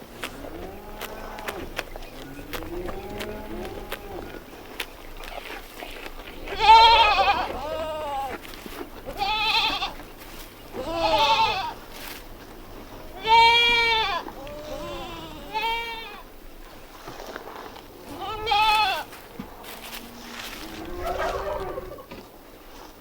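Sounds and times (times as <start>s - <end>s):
goats bleating: 6.3s - 10.1s, 10.7s - 11.9s, 13.0s - 16.3s, 18.1s - 21.9s.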